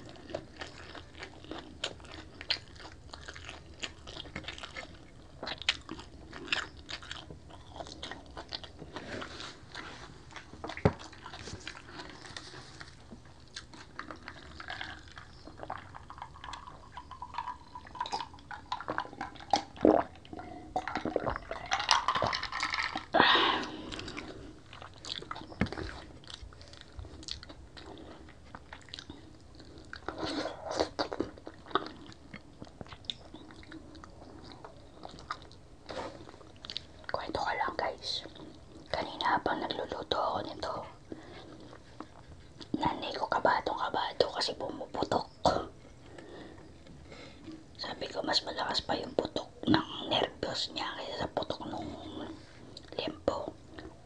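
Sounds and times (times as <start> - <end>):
chewing and crunching crispy food: 0.0 - 54.0.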